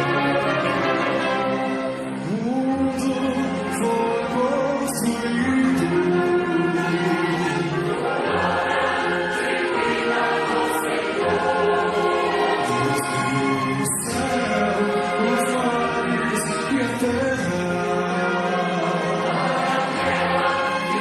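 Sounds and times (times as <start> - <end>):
choir singing held notes: 5.4 - 16.5, 17.8 - 21.0.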